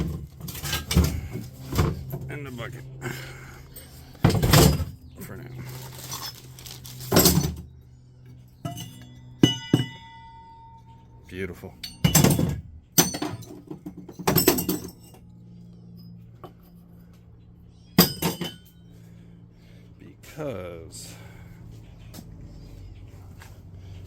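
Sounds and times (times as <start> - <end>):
scrap metal clanking: 0.0 - 2.4
bright metallic clink: 8.6 - 11.0.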